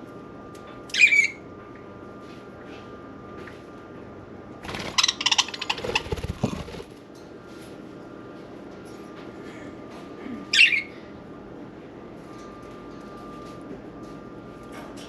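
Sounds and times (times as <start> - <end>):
faint hum: 0.0 - 15.0
budgerigar squawk: 4.9 - 6.3.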